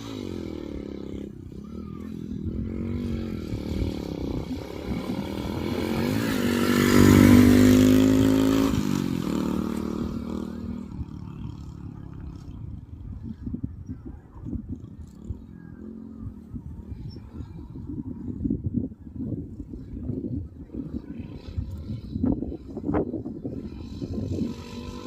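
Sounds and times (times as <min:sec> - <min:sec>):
motorcycle engine revving: 0:00.0 - 0:13.5, 0:14.5 - 0:18.6, 0:19.8 - 0:25.0.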